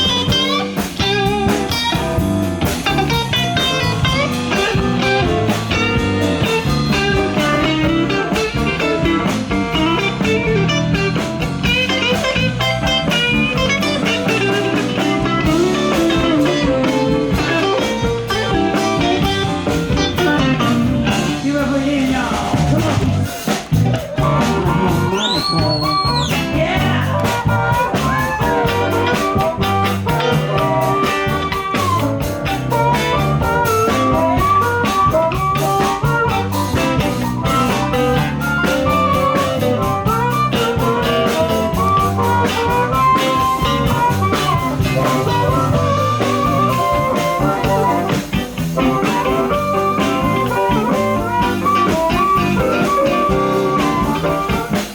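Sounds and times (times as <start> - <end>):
drum kit: 0.0 - 54.9
electric guitar: 0.0 - 54.9.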